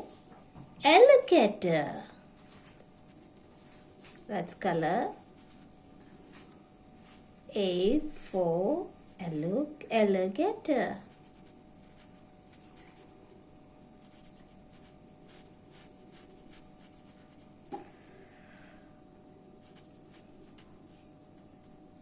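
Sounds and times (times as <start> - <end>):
colouring tool scratching paper: 10.8 - 13.2, 13.9 - 17.7, 19.2 - 21.8.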